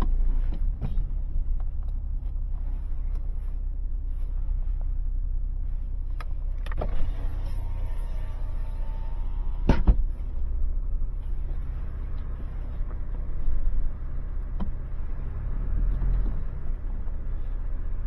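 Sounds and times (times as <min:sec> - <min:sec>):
vehicle engine idling: 0:00.0 - 0:18.0.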